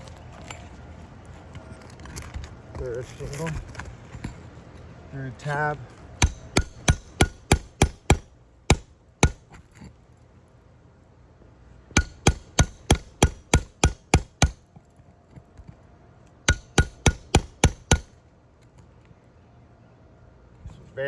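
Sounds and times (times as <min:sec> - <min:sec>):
hammer striking metal: 0:06.2 - 0:09.6, 0:12.0 - 0:14.6, 0:16.5 - 0:18.2.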